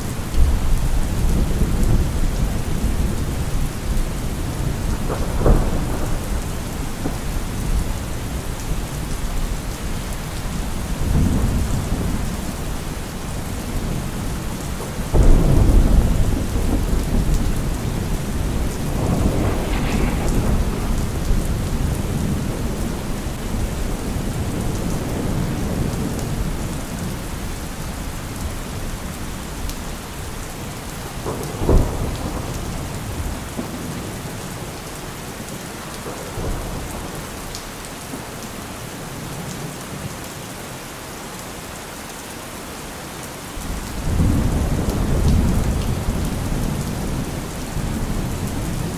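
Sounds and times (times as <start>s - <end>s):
thunder rumbling: 0.0s - 27.2s, 43.6s - 48.9s
heavy rain falling: 0.0s - 48.9s.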